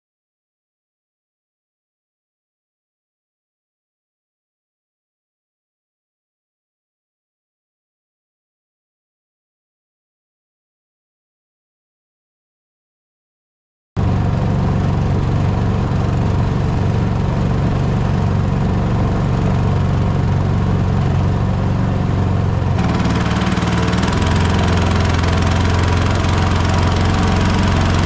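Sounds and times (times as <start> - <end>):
mud motor running: 14.0 - 28.0.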